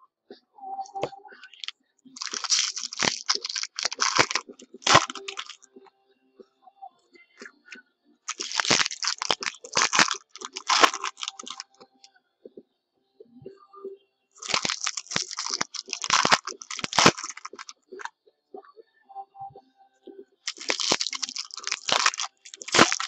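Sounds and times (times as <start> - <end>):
foil packs tearing and crinkling: 1.6 - 5.6, 8.3 - 11.6, 14.4 - 17.7, 20.5 - 23.0.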